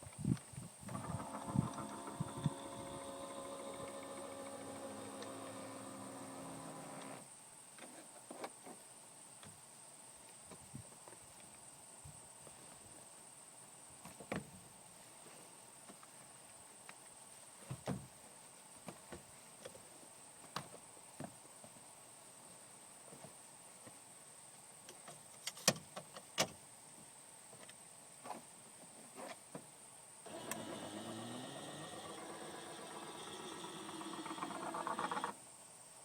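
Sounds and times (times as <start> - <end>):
electric seat motor running: 0.9 - 7.3, 30.3 - 35.4.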